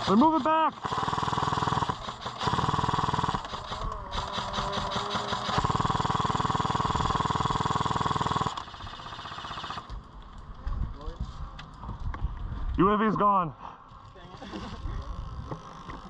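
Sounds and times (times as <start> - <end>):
airsoft gun firing on full auto: 0.0 - 9.9.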